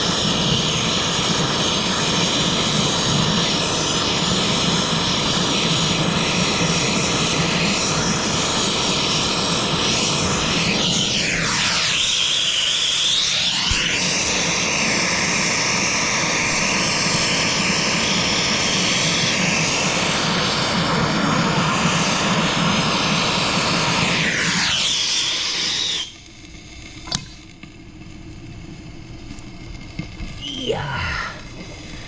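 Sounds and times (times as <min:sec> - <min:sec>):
machine motor whining: 0:00.0 - 0:32.0
sharp click: 0:27.0 - 0:27.8.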